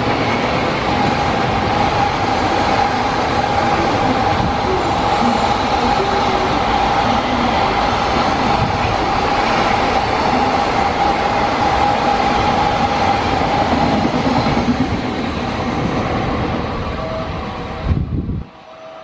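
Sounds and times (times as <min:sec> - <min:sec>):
steady high tone: 0:00.0 - 0:14.7.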